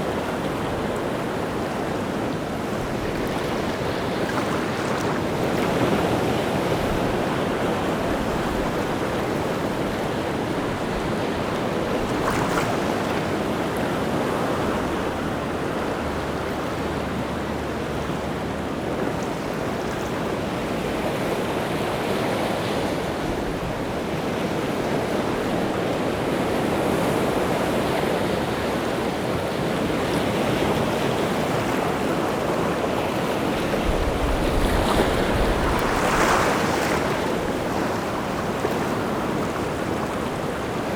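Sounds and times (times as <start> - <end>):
rough sea surf breaking: 24.6 - 40.9.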